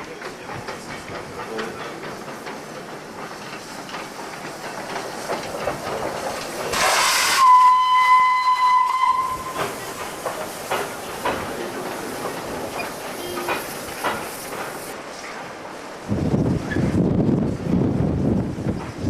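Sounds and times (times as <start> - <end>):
steam hiss: 0.0 - 19.0
steam locomotive running: 0.0 - 19.0
steam whistle: 6.8 - 9.7.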